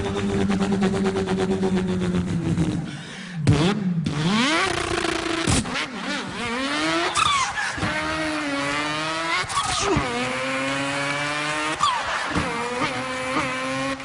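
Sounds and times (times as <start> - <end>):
man imitating car engine: 0.0 - 3.7.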